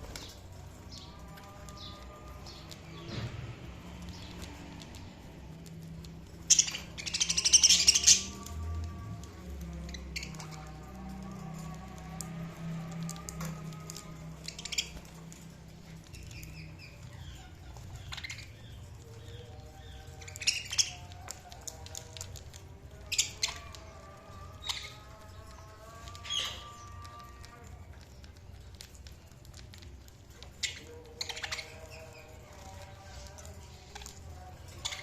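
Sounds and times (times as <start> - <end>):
budgerigars chirping and warbling: 6.3 - 8.6, 13.4 - 22.3, 23.0 - 27.2, 30.3 - 35.0.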